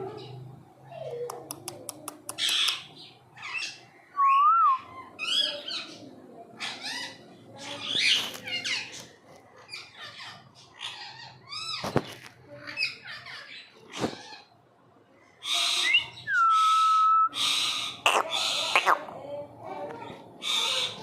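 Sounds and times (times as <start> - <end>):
parrot screeching: 15.5 - 19.1.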